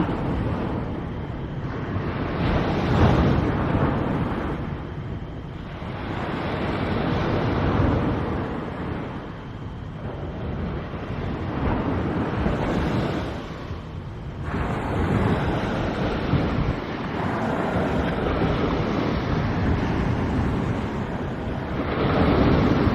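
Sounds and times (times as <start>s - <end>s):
wind on microphone: 0.0s - 22.9s
surf breaking on beach: 5.7s - 22.9s.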